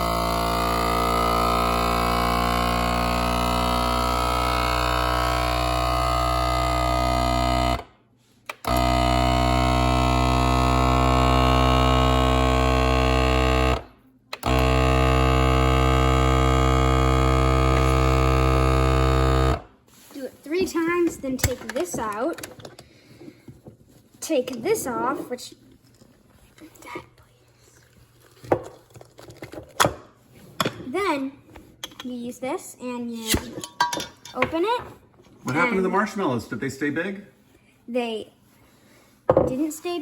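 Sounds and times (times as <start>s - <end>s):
vacuum pump humming: 0.0s - 7.9s, 8.5s - 19.8s.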